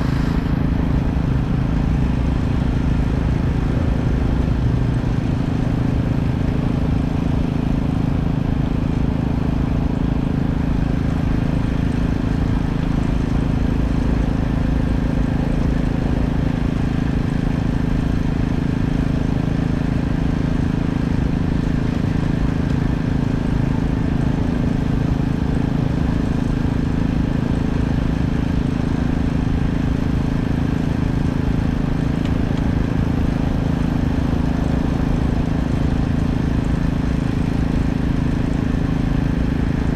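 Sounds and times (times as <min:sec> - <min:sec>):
engine humming steadily: 0:00.0 - 0:39.9.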